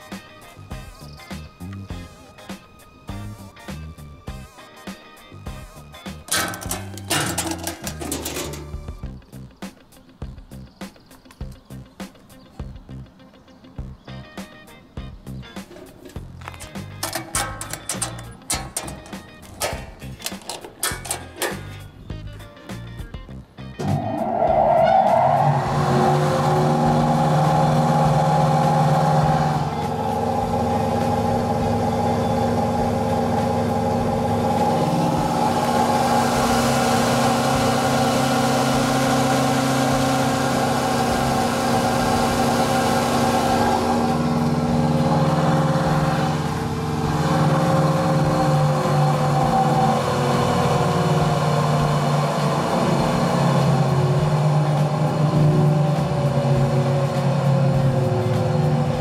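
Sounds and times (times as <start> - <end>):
knife grinder motor whine: 25.6 - 59.0.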